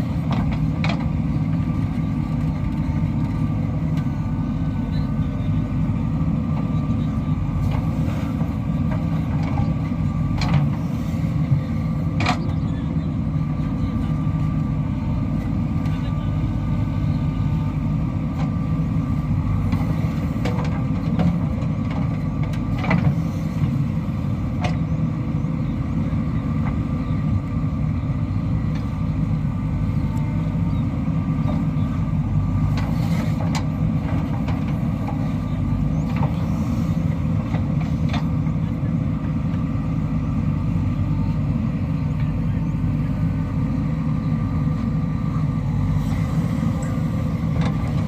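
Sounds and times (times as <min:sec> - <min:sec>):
diesel engine of heavy machinery: 0:00.0 - 0:48.0.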